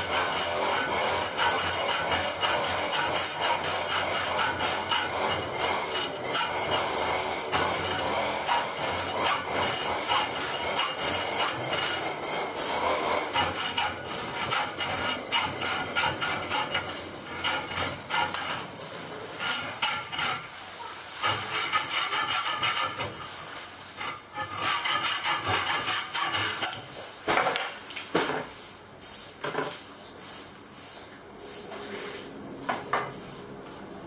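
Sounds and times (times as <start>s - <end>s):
hand tool rasping: 0.0s - 27.2s.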